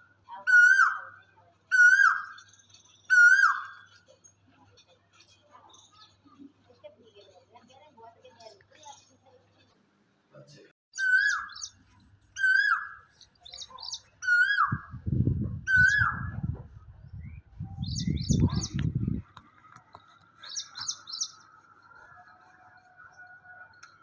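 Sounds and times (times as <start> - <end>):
bird calling with downward notes: 0.5 - 2.5, 3.1 - 3.9, 11.0 - 11.8, 12.4 - 15.1, 15.7 - 16.6.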